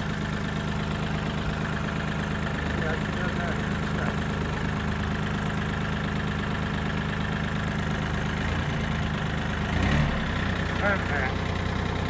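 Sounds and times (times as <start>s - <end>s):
small diesel engine running: 0.0s - 12.0s.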